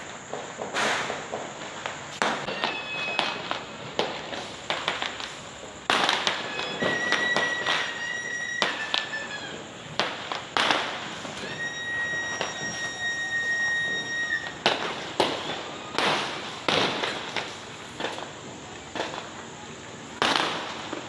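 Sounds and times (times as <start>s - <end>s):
firecrackers banging: 0.0s - 21.0s
high steady whistle: 2.4s - 3.5s, 6.4s - 9.6s, 11.2s - 16.0s.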